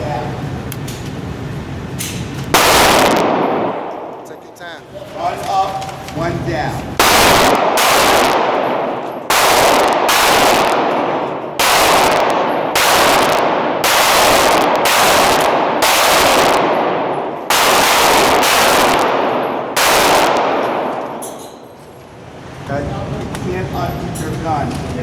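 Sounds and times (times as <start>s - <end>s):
pistol shots echoing: 2.5s - 4.8s, 7.0s - 21.8s.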